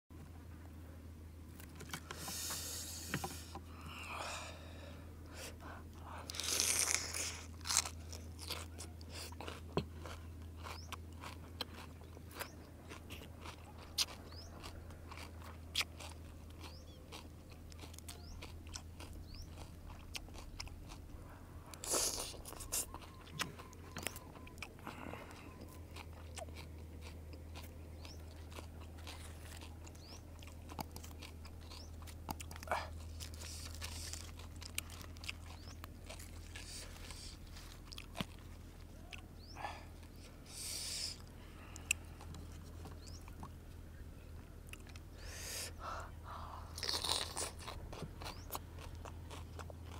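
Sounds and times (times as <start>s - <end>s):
low hum: 0.2s - 49.9s
crunching raw vegetables: 6.0s - 49.9s.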